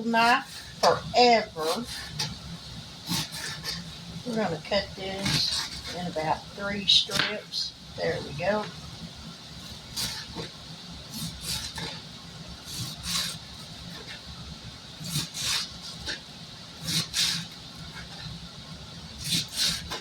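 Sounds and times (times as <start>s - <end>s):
knife sawing through lettuce: 1.6s - 2.3s, 3.0s - 3.9s, 5.2s - 6.2s, 9.9s - 10.5s, 11.1s - 12.0s, 12.7s - 14.2s, 15.0s - 16.2s, 16.8s - 18.2s, 19.2s - 20.0s.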